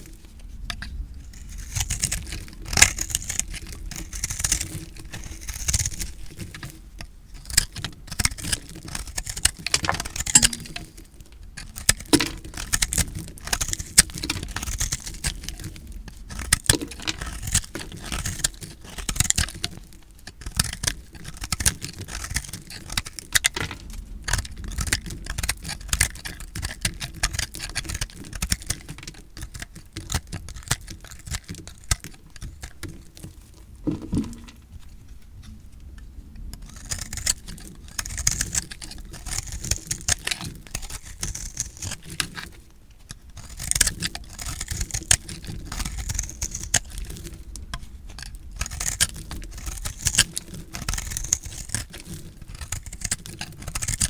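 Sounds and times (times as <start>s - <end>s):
knife crunching through soap: 36.7s - 54.0s.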